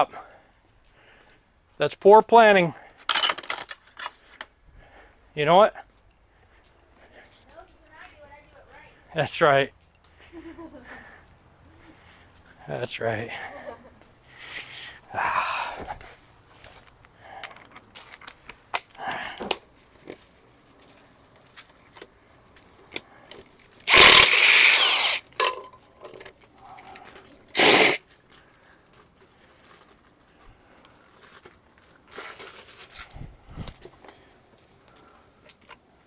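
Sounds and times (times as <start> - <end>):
tools and bolts clanking: 3.1 - 4.3, 23.3 - 28.0
impact wrench running: 23.9 - 25.6, 27.6 - 28.0.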